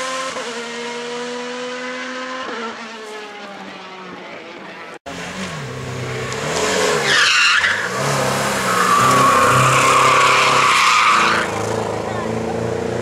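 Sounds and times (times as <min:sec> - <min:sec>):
race car engine revving: 0:00.0 - 0:13.0
tyres squealing: 0:06.9 - 0:11.8.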